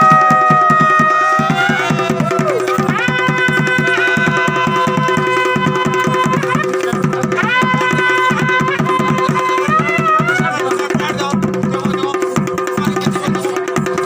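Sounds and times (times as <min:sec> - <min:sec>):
wind instrument melody: 0:00.0 - 0:11.1
fast drumming: 0:00.0 - 0:14.0.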